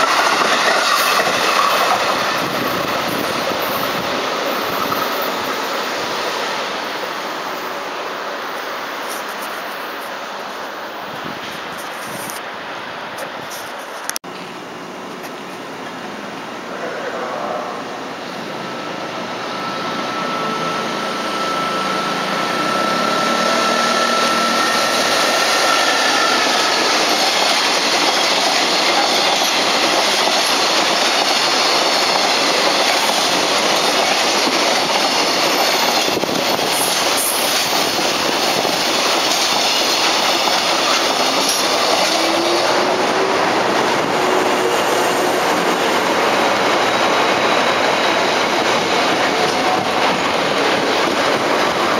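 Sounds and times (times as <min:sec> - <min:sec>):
electric train passing: 0:00.0 - 0:51.9
thin high whine: 0:16.7 - 0:27.2.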